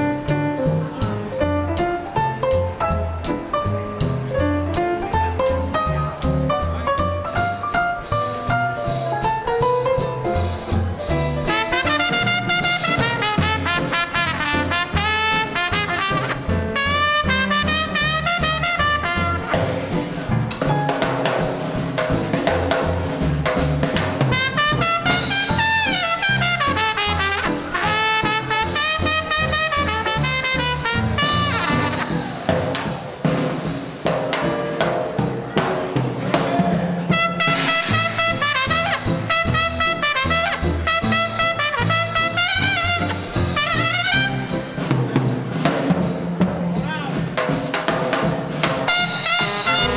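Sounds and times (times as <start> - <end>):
walking bass: 0.0 - 32.8, 35.3 - 47.4, 48.9 - 49.9
drum kit: 0.0 - 49.9
trumpet lead line: 11.4 - 19.9, 24.3 - 32.4, 37.1 - 44.8, 48.9 - 49.9.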